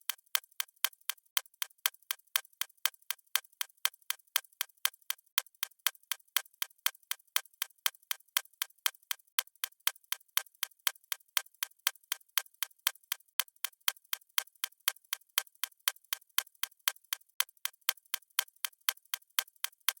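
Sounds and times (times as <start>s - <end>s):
clock ticking fast: 0.0s - 20.0s.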